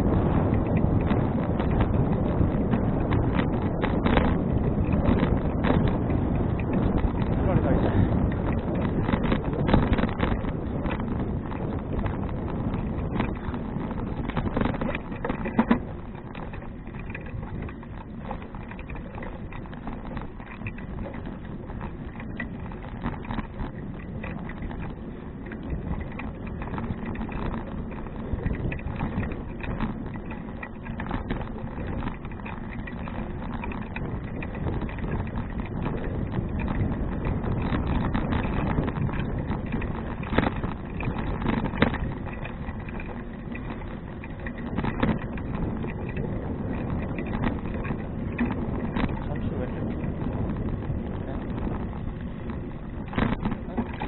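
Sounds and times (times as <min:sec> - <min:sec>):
bicycle tyres rumbling on path: 0:00.0 - 0:54.0
light rattle: 0:00.0 - 0:54.0.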